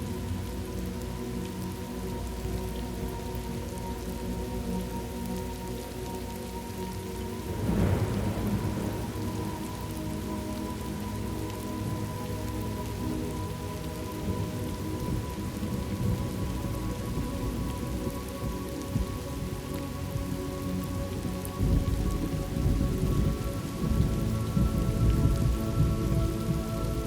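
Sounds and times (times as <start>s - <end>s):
steady rain falling: 0.0s - 27.0s
thunder rumbling: 6.8s - 27.0s.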